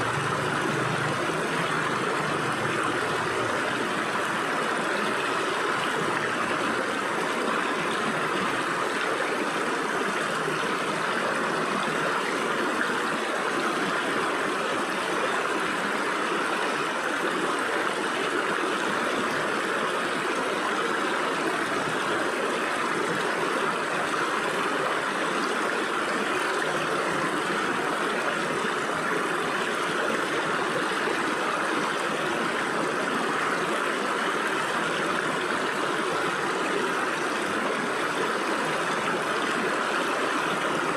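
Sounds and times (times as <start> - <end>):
stream water rushing over rocks: 0.0 - 40.9.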